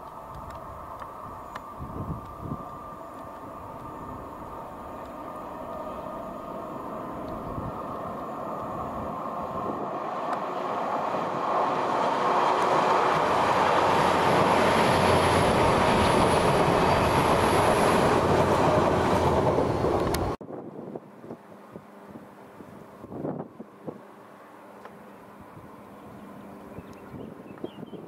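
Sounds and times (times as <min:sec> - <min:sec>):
faint high whine: 0:00.0 - 0:10.8
train passing at speed: 0:00.0 - 0:20.4.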